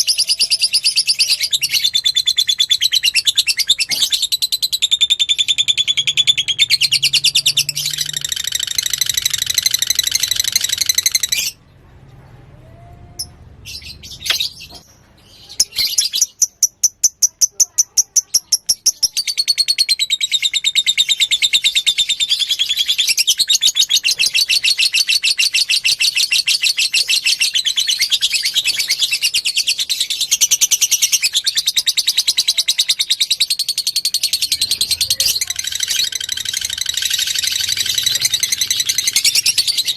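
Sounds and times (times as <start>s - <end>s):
lovebird chattering trills: 15.5s - 39.9s.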